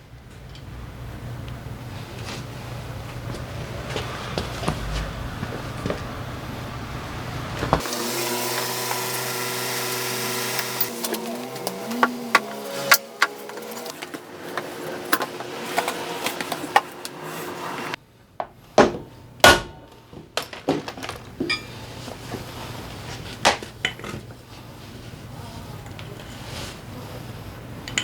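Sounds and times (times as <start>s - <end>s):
tools and metal parts clinking: 10.5s - 16.0s, 20.4s - 22.0s.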